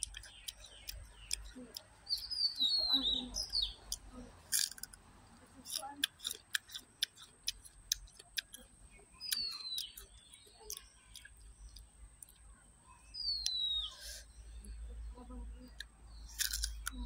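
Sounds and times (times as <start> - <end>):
sharp irregular clicks: 5.6 - 12.5, 15.8 - 17.0.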